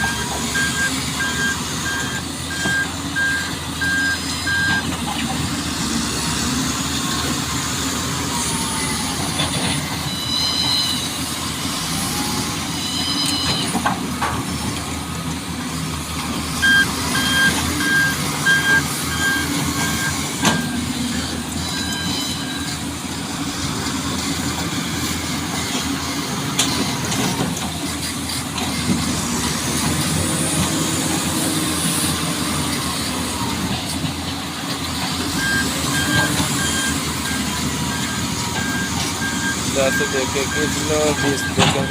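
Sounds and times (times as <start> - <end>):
reversing alarm beeping: 0.0 - 5.0, 9.9 - 11.2, 16.6 - 22.8, 35.3 - 41.9
truck engine running: 0.0 - 41.9.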